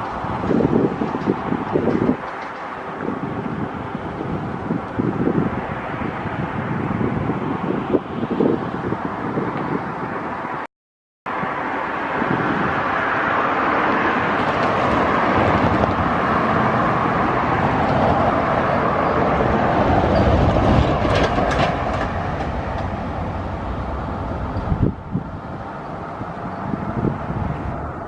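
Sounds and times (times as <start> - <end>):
sharp clacks of train wheels: 0.0 - 2.8, 14.3 - 16.0, 19.0 - 23.0
train wheels rumbling on track: 0.0 - 6.0, 12.0 - 28.0.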